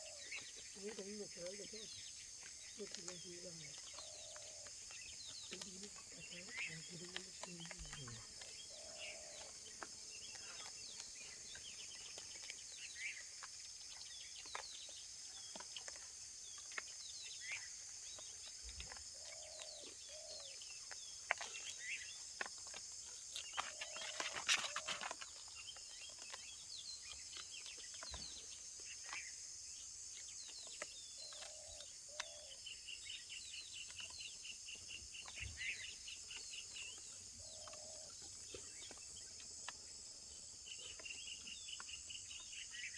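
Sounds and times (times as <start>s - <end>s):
bird chirps and calls: 0.0s - 22.2s
high-pitched insect chorus: 0.0s - 42.9s.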